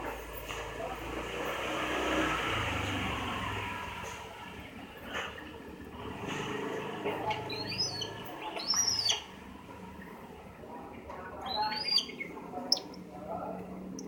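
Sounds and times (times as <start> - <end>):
bird chirping: 7.2 - 10.2, 11.3 - 13.0.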